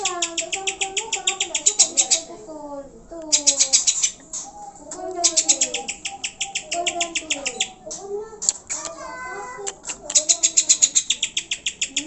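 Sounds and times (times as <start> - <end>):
bird song rapid high notes: 0.0 - 2.3, 5.2 - 7.8, 10.2 - 12.0.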